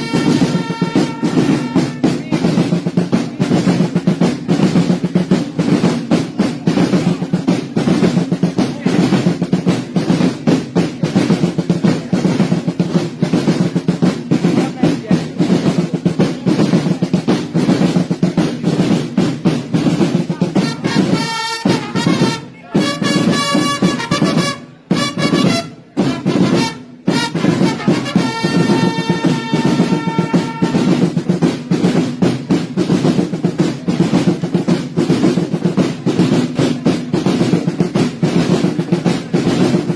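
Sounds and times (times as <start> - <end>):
trumpet calls: 0.0 - 2.1, 20.6 - 31.0
snare drums rolling: 0.0 - 39.9.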